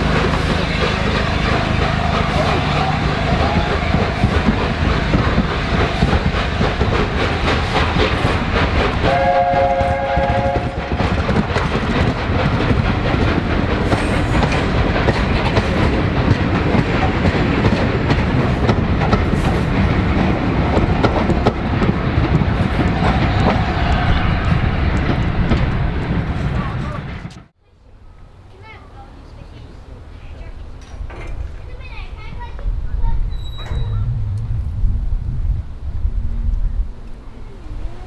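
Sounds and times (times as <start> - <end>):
steam train wheels clattering: 0.0 - 27.5.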